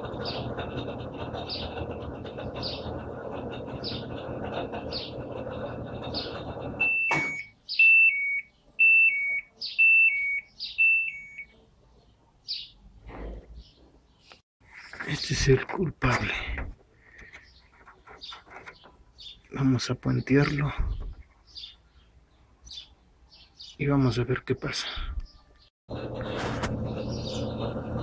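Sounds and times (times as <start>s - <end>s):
washing machine running: 0.0s - 7.4s, 25.9s - 28.0s
two-tone electronic beeps: 6.8s - 11.5s.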